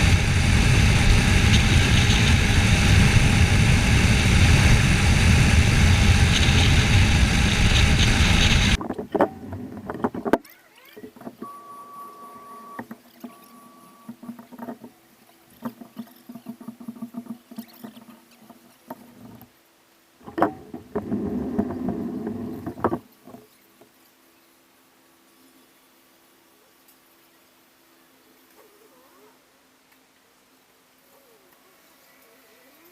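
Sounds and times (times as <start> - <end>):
wind rush: 0.0 - 8.8
motorcycle engine: 0.0 - 10.4
short beep: 11.4 - 14.1
clicks and knocks: 20.2 - 23.4.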